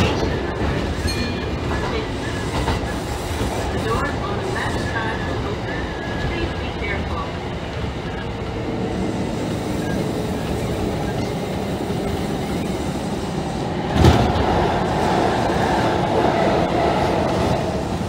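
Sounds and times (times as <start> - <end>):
passing train air rush: 0.0 - 18.0
train wheels rolling on rails: 0.0 - 18.0.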